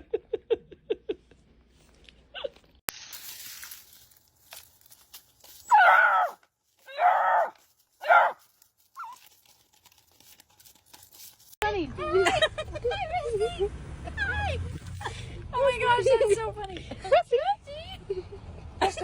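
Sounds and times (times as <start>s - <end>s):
dog howling calls: 5.7s - 8.4s.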